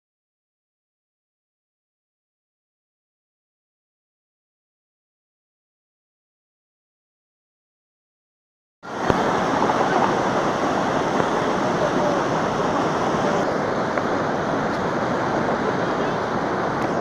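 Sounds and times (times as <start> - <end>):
road and wind noise: 8.8 - 17.0.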